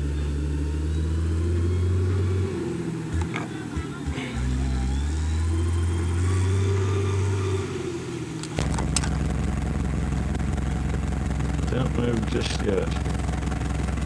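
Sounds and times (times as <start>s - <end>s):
vehicle engine running: 0.0s - 14.0s
clicks: 3.1s - 4.4s, 8.2s - 14.0s.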